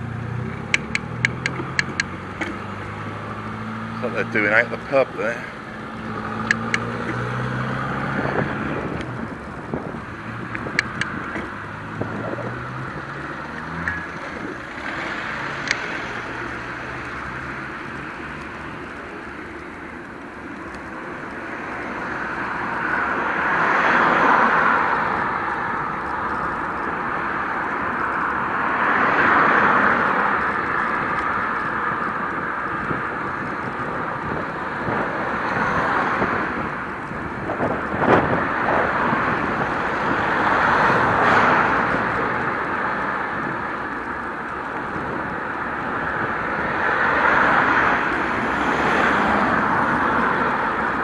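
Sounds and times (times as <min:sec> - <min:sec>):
bicycle road noise: 0:00.0 - 0:51.0
rushing wind: 0:00.0 - 0:51.0
sharp click: 0:00.6 - 0:02.6, 0:06.4 - 0:07.2, 0:10.5 - 0:11.5, 0:15.6 - 0:15.9.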